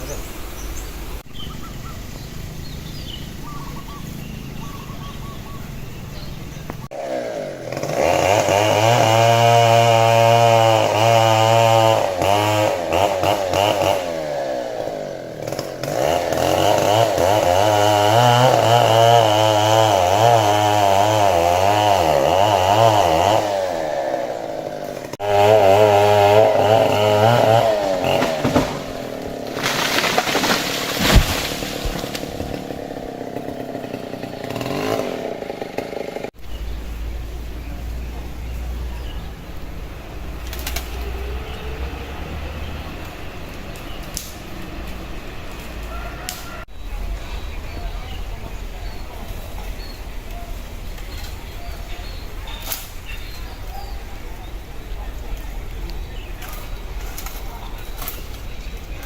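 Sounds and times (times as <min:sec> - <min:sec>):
chainsaw cutting tree trunk: 0:06.2 - 0:46.7.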